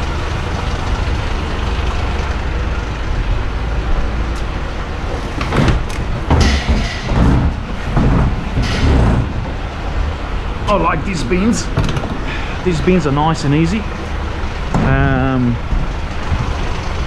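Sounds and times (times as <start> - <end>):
garbage truck engine idling: 0.0 - 17.0
wheelie bins rolling: 3.8 - 17.0.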